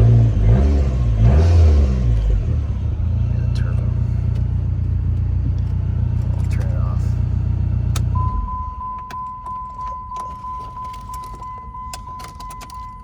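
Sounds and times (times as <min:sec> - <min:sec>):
car engine idling: 0:01.1 - 0:13.0
keys jingling: 0:09.0 - 0:13.0.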